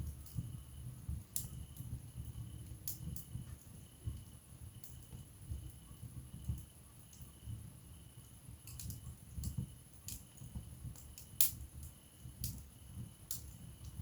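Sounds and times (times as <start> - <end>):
wood fire crackling: 0.0 - 14.0
sharp pops from fire: 2.6 - 3.7, 8.6 - 14.0.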